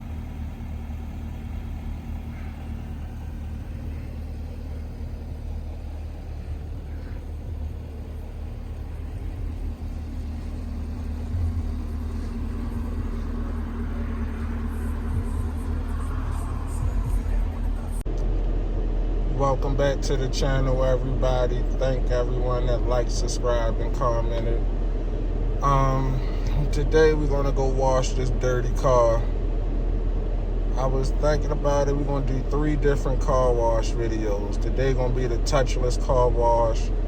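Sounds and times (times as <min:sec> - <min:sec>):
car engine rumbling: 0:00.0 - 0:37.0.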